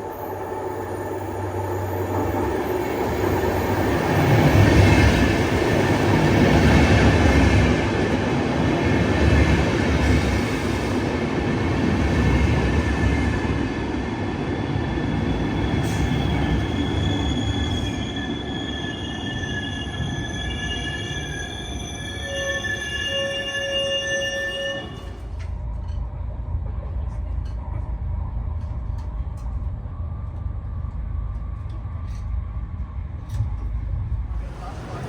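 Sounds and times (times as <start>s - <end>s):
train wheels rumbling on rails: 0.0s - 22.6s, 24.5s - 35.0s
high wheel squeal: 15.6s - 25.3s.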